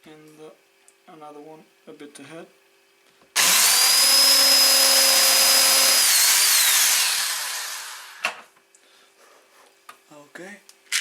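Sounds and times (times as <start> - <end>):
electric drill whining: 3.4 - 8.4.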